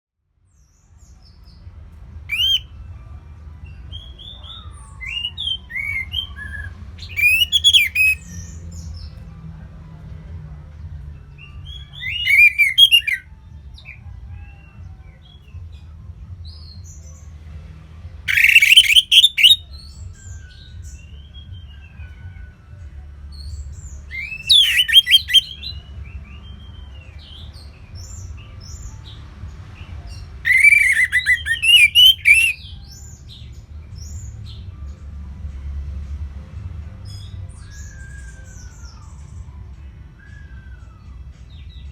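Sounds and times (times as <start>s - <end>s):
other songbirds singing: 2.3s - 2.7s, 3.7s - 9.2s, 11.4s - 15.6s, 18.3s - 22.2s, 23.3s - 34.7s, 37.0s - 41.9s
thrush singing: 2.3s - 2.7s, 3.9s - 8.6s, 11.6s - 14.0s, 18.3s - 19.6s, 24.0s - 27.5s, 30.3s - 32.8s.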